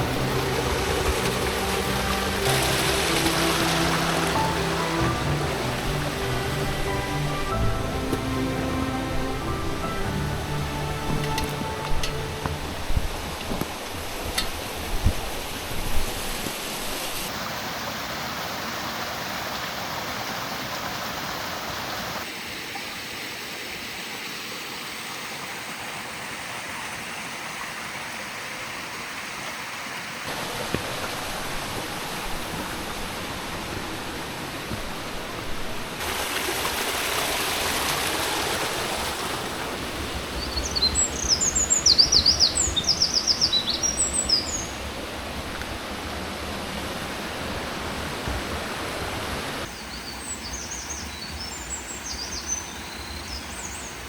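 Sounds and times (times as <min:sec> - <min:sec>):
waterfall and stream rushing: 0:00.0 - 0:54.0
small bird chirping: 0:40.4 - 0:44.8.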